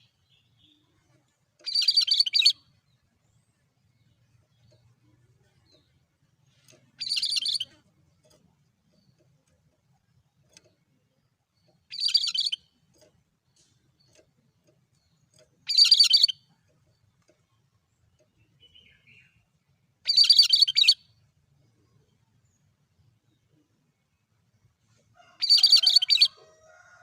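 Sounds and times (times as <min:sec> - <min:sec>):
bird chattering call: 0:11.9 - 0:12.6.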